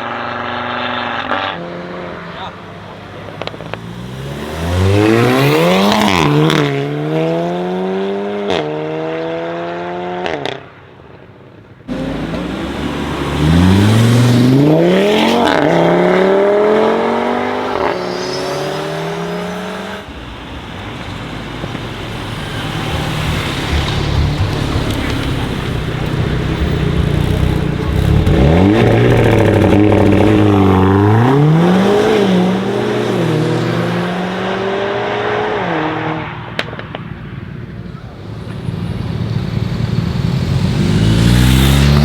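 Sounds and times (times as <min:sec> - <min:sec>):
car engine accelerating hard: 0:00.0 - 0:10.6, 0:11.9 - 0:42.0
low engine burble: 0:17.5 - 0:30.5, 0:36.6 - 0:42.0.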